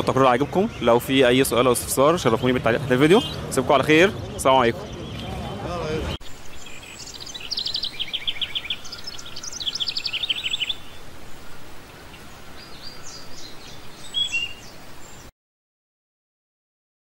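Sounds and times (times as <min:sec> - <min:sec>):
small songbird chirping: 0:00.0 - 0:15.3.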